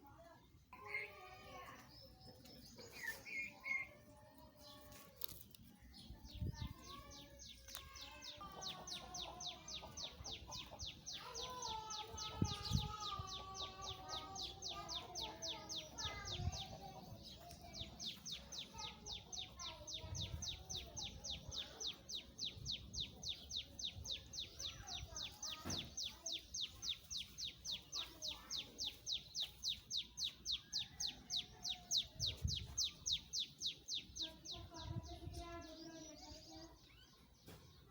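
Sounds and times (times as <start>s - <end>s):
birds with lower wavering calls: 0.7s - 5.0s, 5.9s - 37.9s
bird chirping rapidly: 8.8s - 36.0s.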